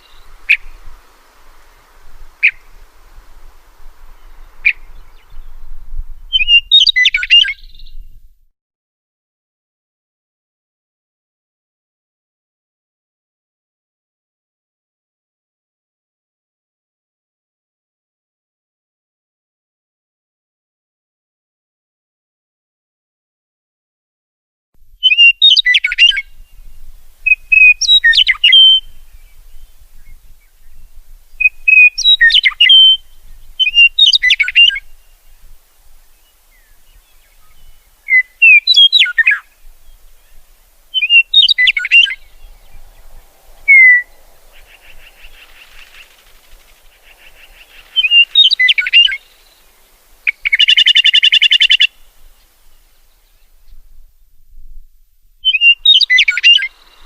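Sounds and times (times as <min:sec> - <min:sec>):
harsh buzzy bird call: 0:00.0 - 0:05.2, 0:36.1 - 0:53.1
songbird whistled phrases: 0:06.3 - 0:08.1, 0:25.0 - 0:30.8, 0:31.4 - 0:35.3, 0:36.5 - 0:46.2, 0:47.1 - 0:49.6, 0:50.2 - 0:52.0, 0:55.4 - 0:57.0.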